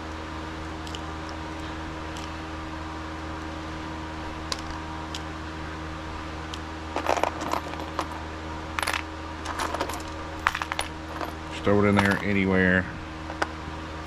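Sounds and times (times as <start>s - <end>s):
steady low hum: 0.0s - 14.0s
metal parts clinking: 6.9s - 8.2s, 8.8s - 12.4s.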